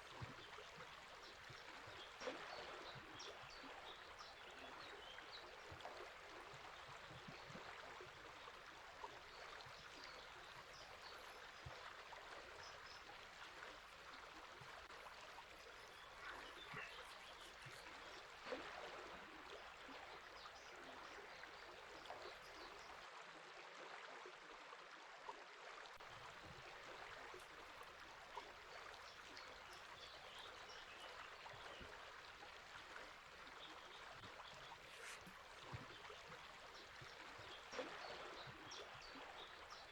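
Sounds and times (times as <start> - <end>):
river water running: 0.0 - 39.9
faint bird chirps: 15.5 - 18.6, 28.4 - 39.9.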